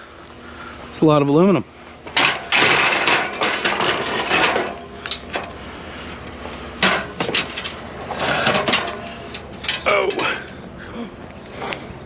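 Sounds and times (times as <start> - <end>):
scrap metal scraping and rattling: 2.0 - 10.6.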